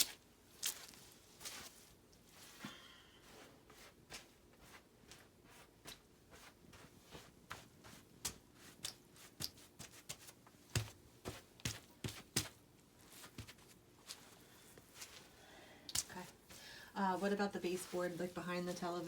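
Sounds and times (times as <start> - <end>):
footsteps on wet carpet: 0.0 - 2.7.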